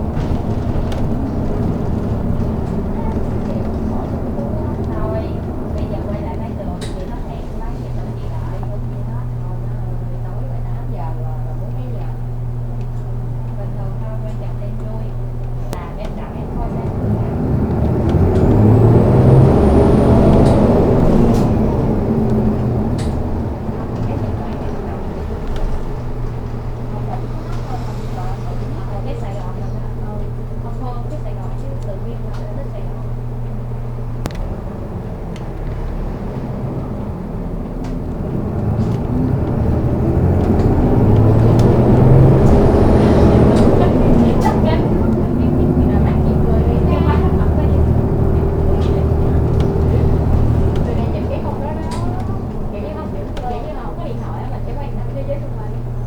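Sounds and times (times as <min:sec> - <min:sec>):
light rattles: 0:00.0 - 0:09.5
bus engine from inside: 0:00.0 - 0:56.0.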